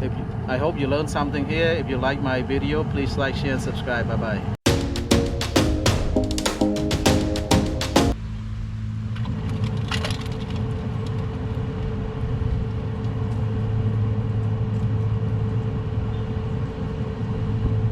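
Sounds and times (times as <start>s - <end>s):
music beats: 4.6s - 8.2s
mechanical hum with low drone: 8.3s - 17.9s.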